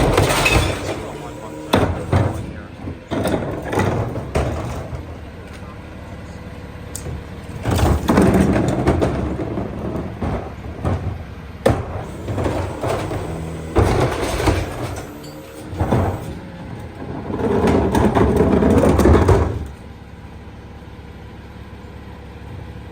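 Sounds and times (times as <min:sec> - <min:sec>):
metal bangs: 0:00.0 - 0:05.1
recyclables clattering: 0:00.0 - 0:05.7, 0:07.5 - 0:16.4
garbage truck running: 0:00.0 - 0:22.9.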